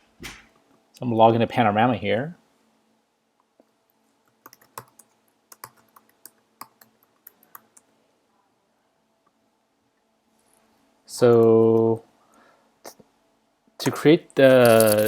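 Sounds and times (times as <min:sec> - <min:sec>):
typing on computer keyboard: 0:04.3 - 0:07.9.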